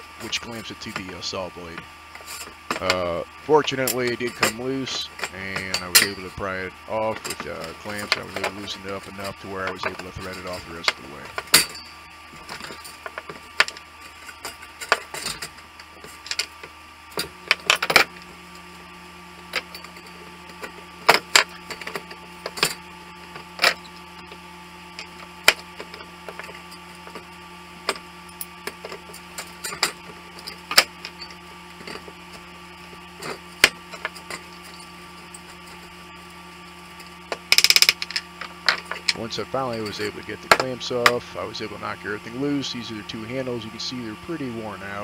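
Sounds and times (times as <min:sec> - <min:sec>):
steady hum: 0:00.0 - 0:45.0.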